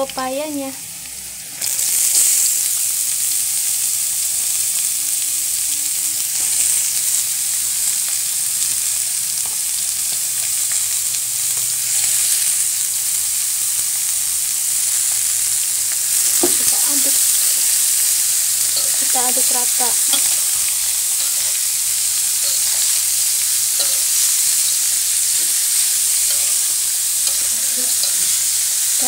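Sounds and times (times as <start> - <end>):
papaya sizzling in hot oil: 0.0 - 29.0.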